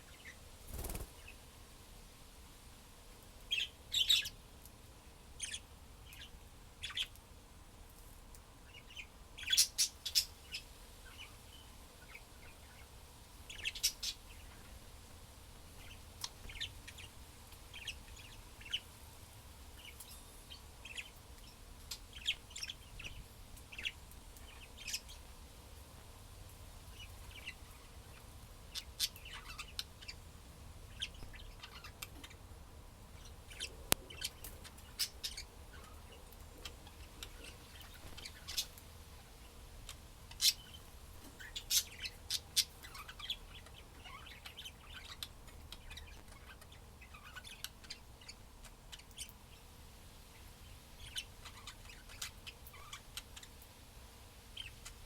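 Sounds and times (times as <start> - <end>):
budgerigars chirping: 26.9 - 30.2, 41.4 - 49.4.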